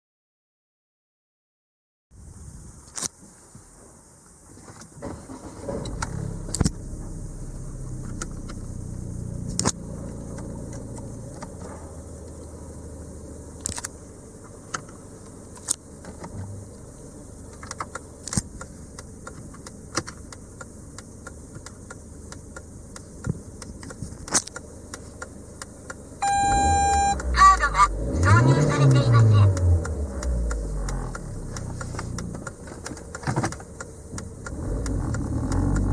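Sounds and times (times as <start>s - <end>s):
car engine starting and idling: 3.7s - 35.9s
sharp clicks and knocks: 29.5s - 35.9s.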